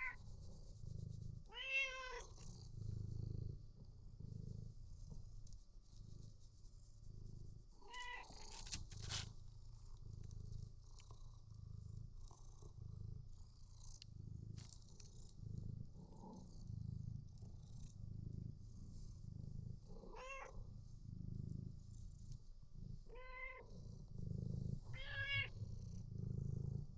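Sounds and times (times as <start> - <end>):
cat purring: 0.0 - 26.9
cat meowing: 1.5 - 2.2, 7.8 - 8.3, 20.1 - 20.5, 23.1 - 23.6, 24.9 - 25.5.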